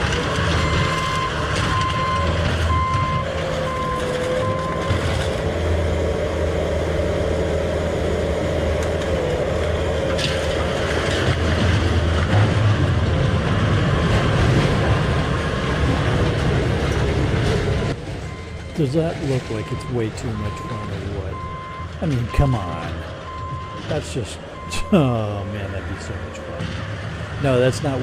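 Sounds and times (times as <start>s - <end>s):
diesel engine drone with whine: 0.0s - 28.0s
reversing beeps: 0.6s - 5.1s, 18.3s - 24.0s, 24.6s - 25.2s.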